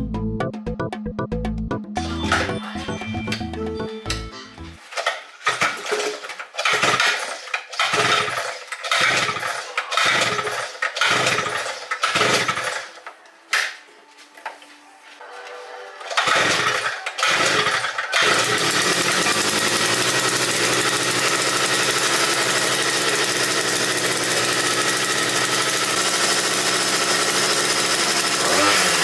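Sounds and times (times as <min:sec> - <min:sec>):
small engine pull-started: 0:04.8 - 0:13.0, 0:16.0 - 0:29.0.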